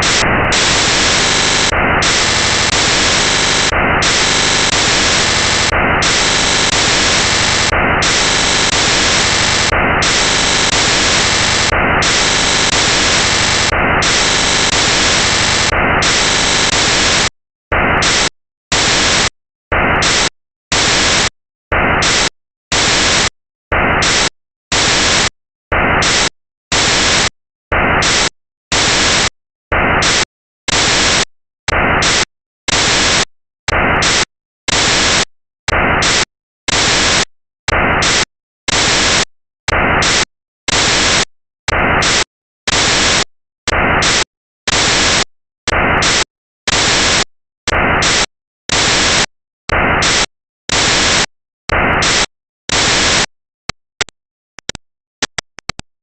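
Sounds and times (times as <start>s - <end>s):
loud static hiss: 0.0s - 17.3s
chopped static bursts: 0.0s - 35.2s, 48.0s - 53.3s.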